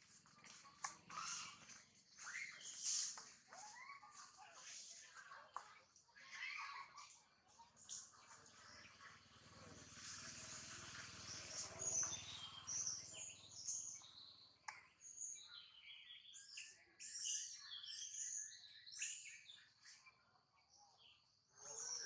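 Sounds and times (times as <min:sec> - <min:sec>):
birds chirping: 0:00.0 - 0:20.2.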